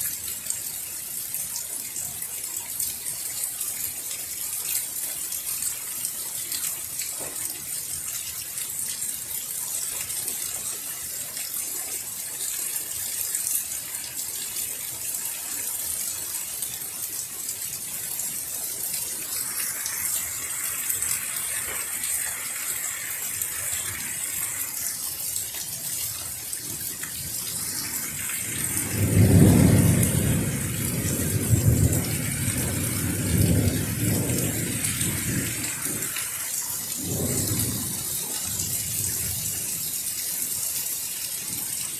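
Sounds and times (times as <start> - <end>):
heavy rain falling: 0.0 - 41.9
thunder rumbling: 27.2 - 36.2, 36.9 - 39.6.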